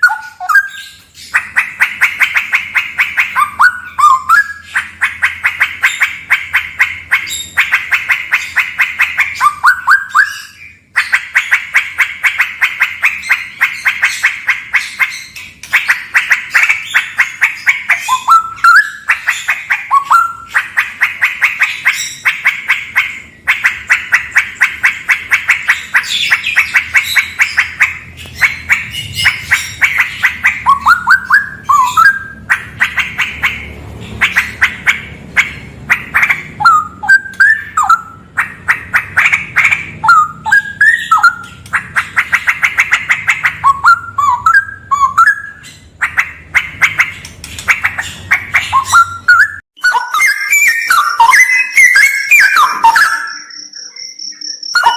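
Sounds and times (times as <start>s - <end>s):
bulbul singing: 12.7s - 54.9s.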